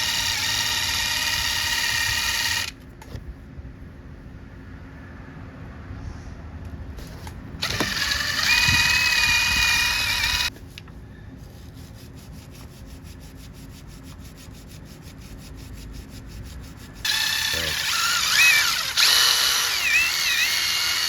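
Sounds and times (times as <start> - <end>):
power tool motor whirring: 0.0 - 2.8, 7.0 - 10.5, 16.9 - 21.0.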